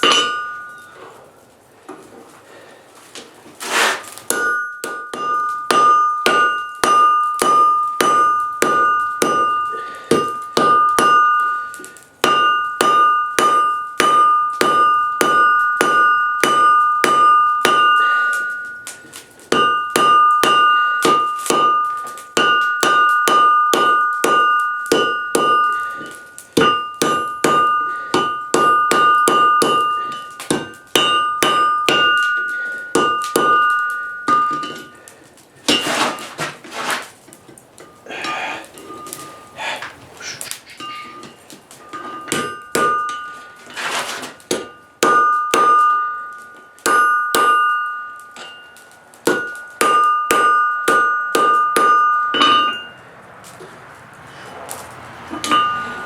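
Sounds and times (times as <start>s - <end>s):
hammer striking anvil: 0.0s - 1.1s, 4.3s - 35.1s, 40.8s - 53.0s, 55.3s - 56.0s
anvil ringing: 0.0s - 1.2s, 4.3s - 36.0s, 37.8s - 39.9s, 40.8s - 53.2s, 55.3s - 56.0s.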